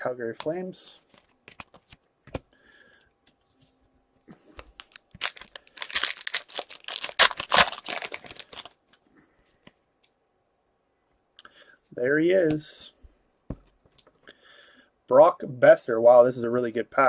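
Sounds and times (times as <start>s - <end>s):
foil wrapper crinkling and tearing: 4.8s - 8.8s.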